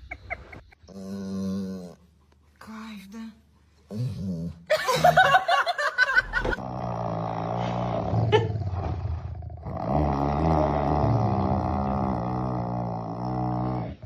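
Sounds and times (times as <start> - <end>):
dog growling: 0.8 - 2.1, 6.5 - 14.0.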